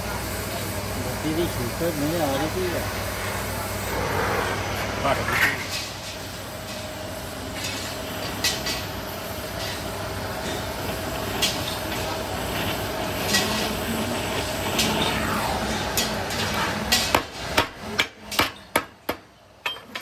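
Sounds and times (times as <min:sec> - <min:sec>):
steady machine hum: 0:00.0 - 0:18.4.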